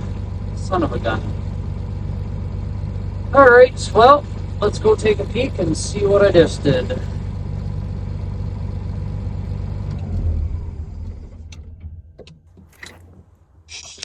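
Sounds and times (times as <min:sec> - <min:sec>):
diesel engine running: 0:00.0 - 0:14.0
sharp clicks and knocks: 0:11.4 - 0:14.0.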